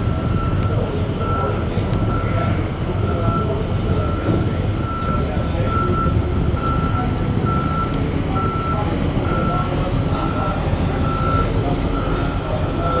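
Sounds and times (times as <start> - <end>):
loader engine running: 0.0 - 13.0
reversing alarm beeping: 0.0 - 13.0.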